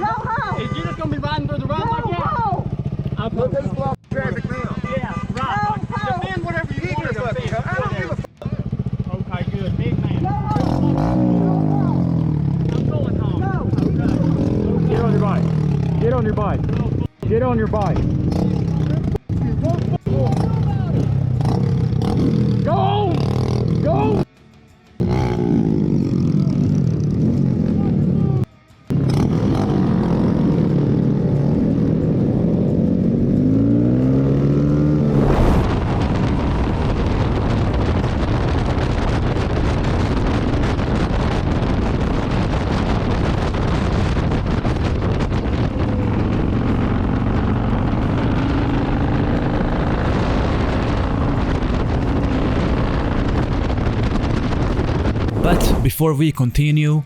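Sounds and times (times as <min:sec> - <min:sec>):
motorcycle engines revving: 0:00.0 - 0:24.4, 0:25.0 - 0:36.9
engine hum: 0:17.7 - 0:37.0
wind rushing over microphone: 0:34.8 - 0:46.5.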